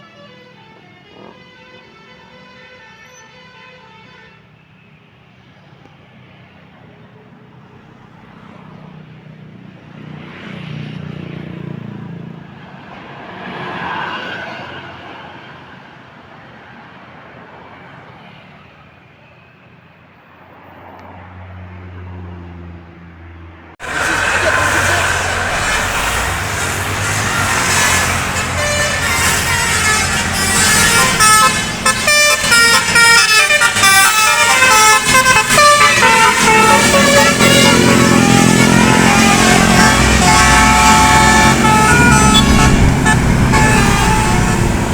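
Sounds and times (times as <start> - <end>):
bus horn playing a tune: 0.0 - 4.6, 23.8 - 44.9
bus noise: 0.0 - 44.9
tyre and road noise rush: 4.8 - 44.9
vehicle engine rumble: 23.8 - 44.9.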